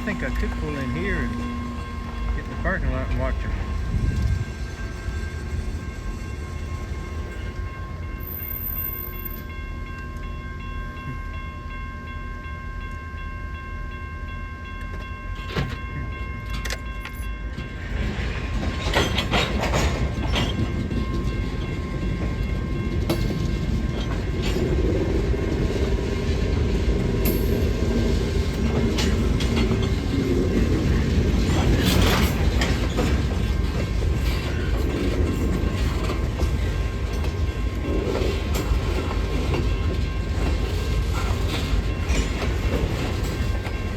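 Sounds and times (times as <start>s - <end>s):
steady tones: 0.0s - 7.3s
train clanking and rattling: 0.0s - 12.2s, 14.2s - 43.9s
train rumbling past: 0.0s - 43.9s.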